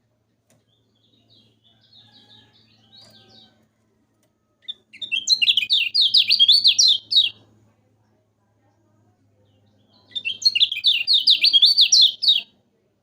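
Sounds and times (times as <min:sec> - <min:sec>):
songbird singing: 0:00.0 - 0:12.8.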